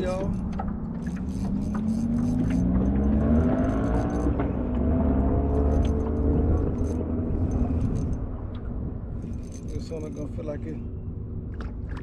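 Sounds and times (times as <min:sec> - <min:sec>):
low rumble: 0:00.0 - 0:12.0
small motor hum rising: 0:00.4 - 0:08.4.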